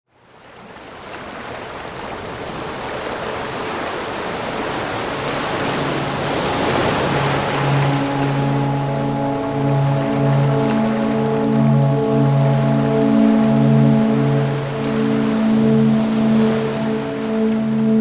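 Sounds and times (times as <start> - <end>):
ocean surf rushing: 2.1 - 18.0
soft sustained music notes: 5.2 - 18.0.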